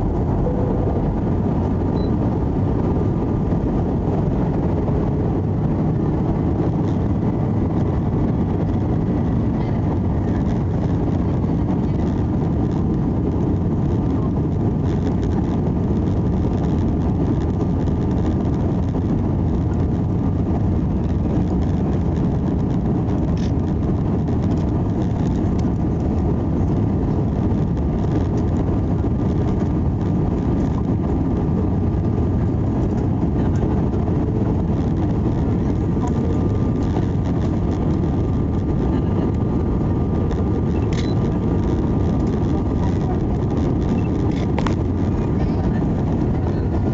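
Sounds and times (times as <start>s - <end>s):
aircraft cabin engine rumble: 0.0s - 46.9s
faint steady high tone: 0.4s - 1.1s.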